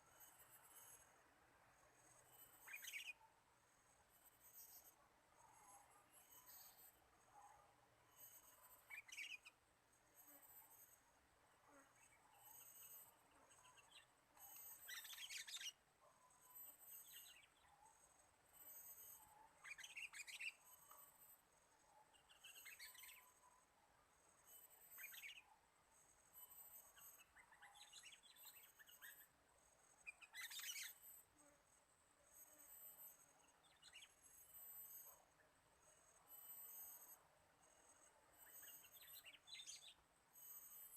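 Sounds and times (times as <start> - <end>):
songbird chattering chirps: 2.6 - 3.2, 13.6 - 15.8, 19.6 - 20.9, 30.0 - 31.0.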